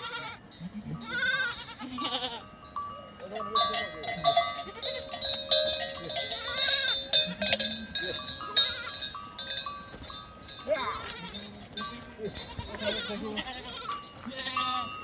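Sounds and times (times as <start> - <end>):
goat or sheep bleating: 0.0 - 2.6, 4.2 - 5.4, 6.1 - 9.2, 10.6 - 15.0
livestock bells clanking: 0.0 - 15.0.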